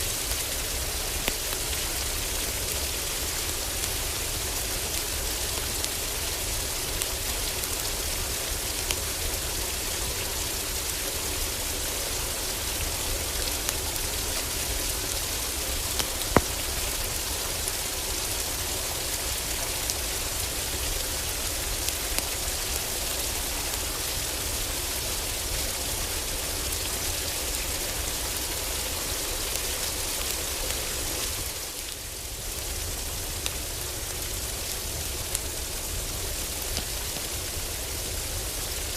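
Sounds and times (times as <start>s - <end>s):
heavy rain on a roof: 0.0s - 38.9s
wood fire crackling and popping: 12.5s - 18.1s, 33.2s - 38.9s.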